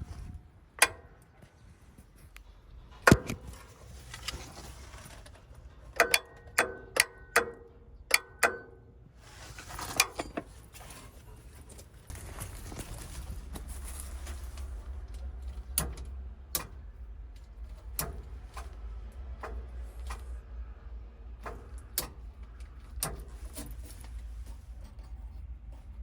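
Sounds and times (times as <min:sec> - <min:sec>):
rustling: 0:03.4 - 0:05.8, 0:09.2 - 0:15.7.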